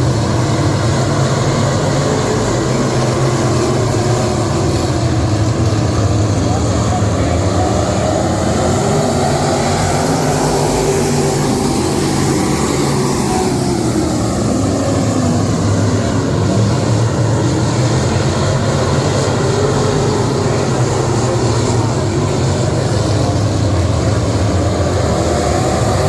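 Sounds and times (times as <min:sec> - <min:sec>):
race car engines running: 0:00.0 - 0:26.0.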